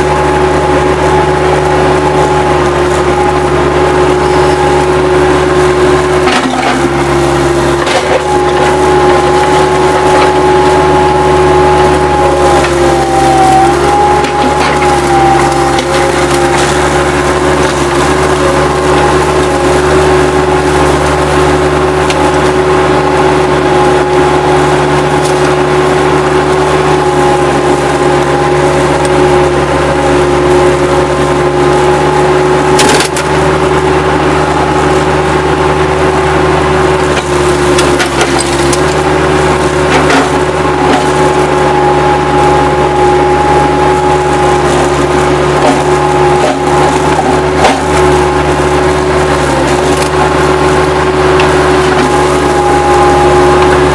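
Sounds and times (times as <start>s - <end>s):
skid-steer loader engine whine: 0.0s - 53.9s
wood cracking and splintering: 1.2s - 22.8s, 32.7s - 33.3s, 37.0s - 53.9s.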